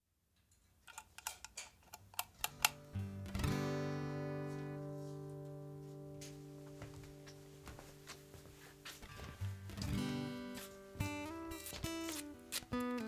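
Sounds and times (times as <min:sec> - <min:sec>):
guitar chord strummed: 0:02.7 - 0:13.0.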